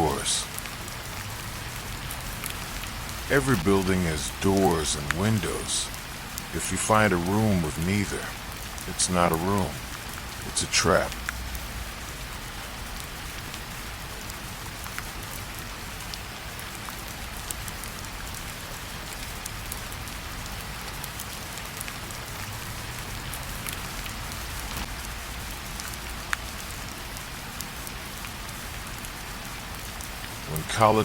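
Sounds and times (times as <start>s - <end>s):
steady rainfall: 0.0s - 31.0s
drops ticking: 0.2s - 11.7s.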